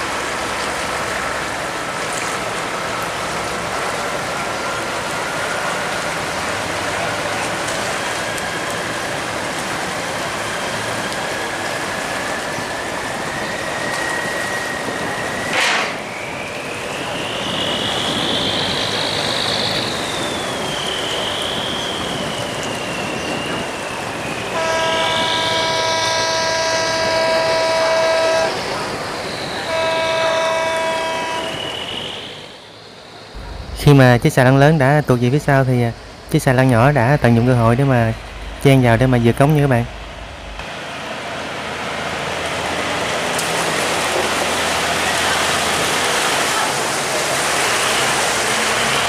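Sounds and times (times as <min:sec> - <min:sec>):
boat horn blasts: 0:24.5 - 0:32.0
steady rush of noise: 0:32.3 - 0:49.0.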